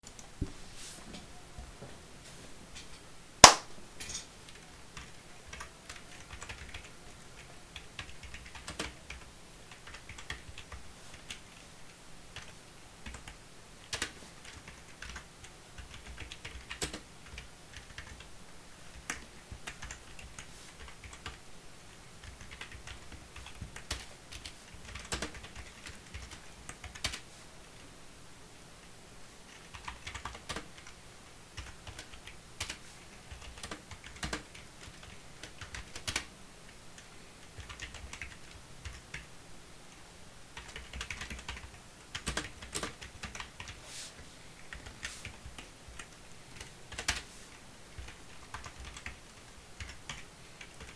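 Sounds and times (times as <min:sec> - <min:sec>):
computer keyboard typing: 0:04.5 - 0:18.3, 0:18.9 - 0:21.4, 0:22.2 - 0:27.3, 0:29.5 - 0:31.0, 0:31.6 - 0:39.3, 0:40.6 - 0:43.8, 0:44.7 - 0:47.3, 0:48.0 - 0:50.9.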